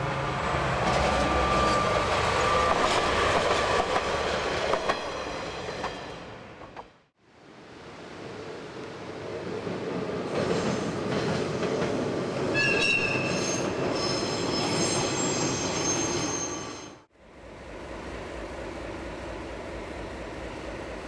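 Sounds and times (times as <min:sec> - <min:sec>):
train rumbling over bridge: 0:00.0 - 0:21.0
high-pitched wheel squeal: 0:01.1 - 0:03.0, 0:12.6 - 0:17.0.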